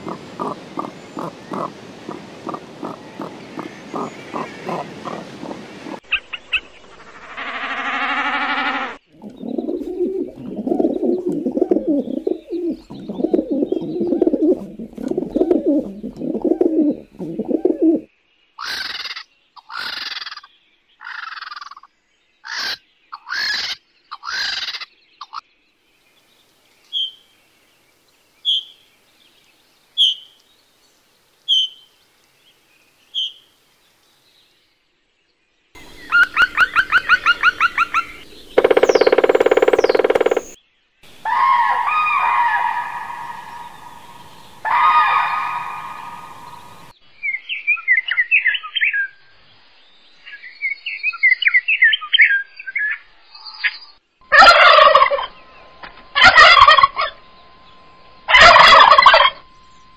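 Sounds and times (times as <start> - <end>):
fast rattling bird call: 0.0 - 6.0, 18.6 - 21.8, 35.8 - 40.6
pigeon cooing: 0.0 - 6.0, 8.3 - 18.1, 35.8 - 40.6
loud harsh bird calls: 0.0 - 17.1, 18.6 - 25.4, 35.8 - 46.9.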